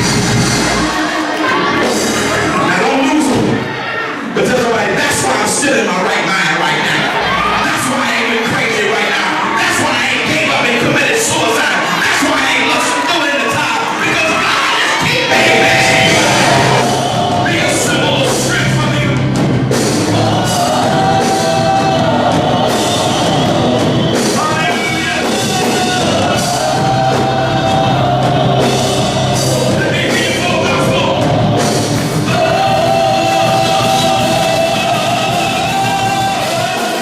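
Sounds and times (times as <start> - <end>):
drums and cymbals: 0.0 - 3.5, 15.0 - 37.0
band music with singing: 0.0 - 37.0
long high sung note: 15.3 - 17.0.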